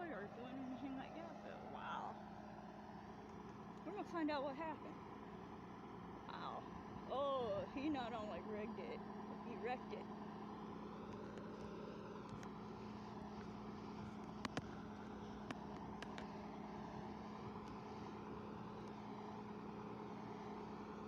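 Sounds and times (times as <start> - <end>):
vehicle engine idling: 0.0 - 21.0
faint clicks: 11.1 - 12.6, 14.2 - 14.8, 15.4 - 16.3.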